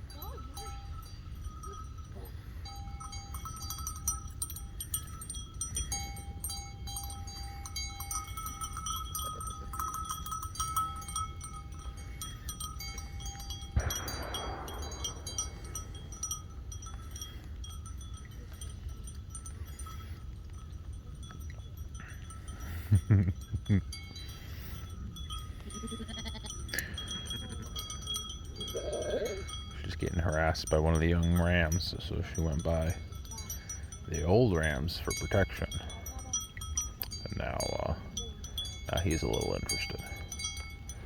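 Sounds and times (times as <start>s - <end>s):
bells ringing: 0.0s - 41.0s
low rumble: 13.4s - 17.8s.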